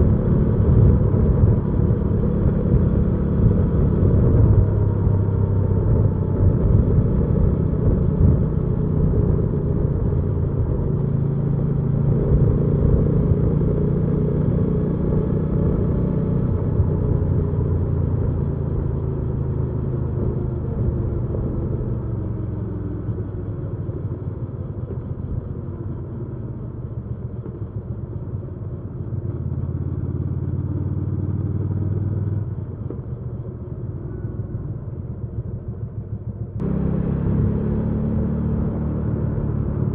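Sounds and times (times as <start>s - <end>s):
motorcycle engine running: 23.8s - 39.9s.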